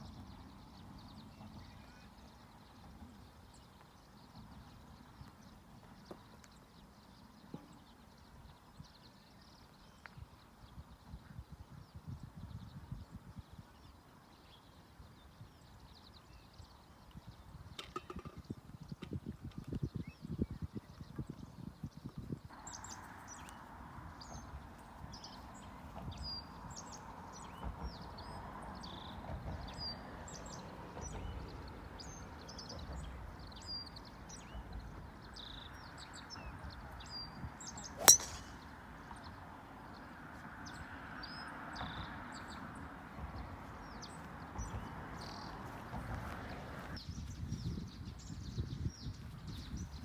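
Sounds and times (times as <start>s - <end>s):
birds chirping: 33.5s - 39.3s
golf club striking ball: 38.0s - 38.7s.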